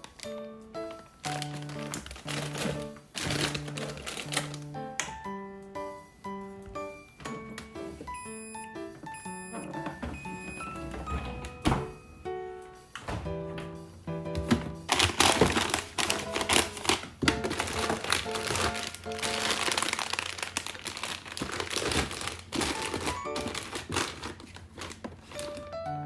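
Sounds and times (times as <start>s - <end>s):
plastic packaging crinkling: 0.0s - 5.2s, 14.9s - 25.8s
light background music: 0.0s - 26.0s.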